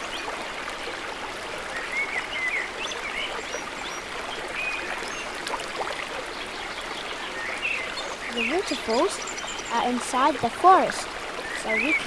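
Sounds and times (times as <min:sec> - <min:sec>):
waterfall rushing: 0:05.0 - 0:12.0.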